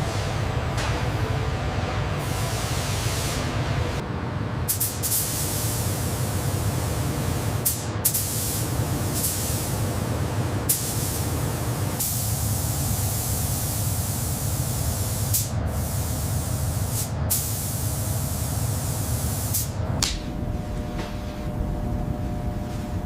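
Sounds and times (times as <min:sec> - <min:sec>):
low hum: 0:20.0 - 0:23.0.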